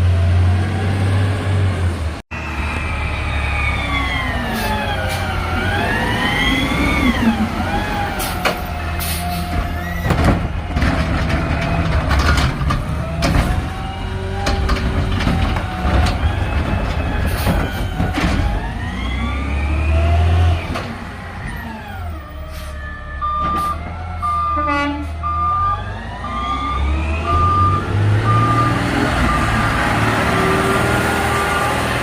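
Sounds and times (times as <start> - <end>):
truck diesel engine revving: 0.0 - 23.4, 24.0 - 32.0
backup alarm beeping: 22.9 - 29.6.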